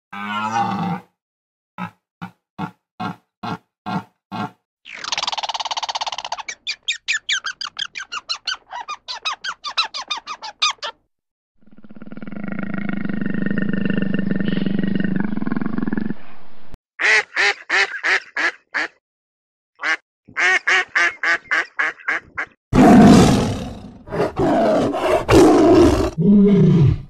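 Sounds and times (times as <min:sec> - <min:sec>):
long low animal call: 0:00.1 - 0:01.1.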